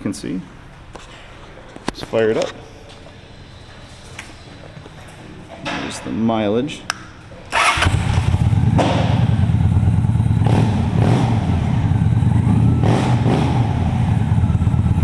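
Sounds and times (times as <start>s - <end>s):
motorcycle engine rumbling: 7.6s - 15.0s.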